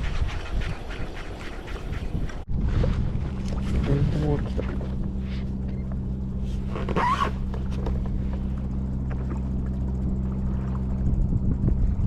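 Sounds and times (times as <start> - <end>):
motor humming: 3.1 - 12.0.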